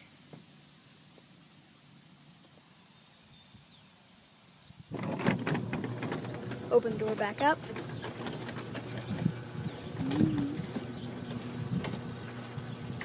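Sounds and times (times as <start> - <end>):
garage door opener clattering: 5.0 - 13.0
low hum: 8.8 - 13.0.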